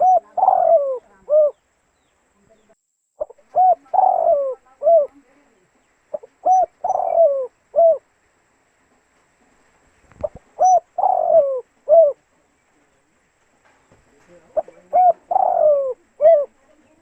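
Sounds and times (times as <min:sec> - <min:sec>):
dove cooing: 0:00.0 - 0:01.6, 0:03.2 - 0:05.5, 0:06.1 - 0:08.1, 0:10.1 - 0:13.0, 0:14.3 - 0:17.0.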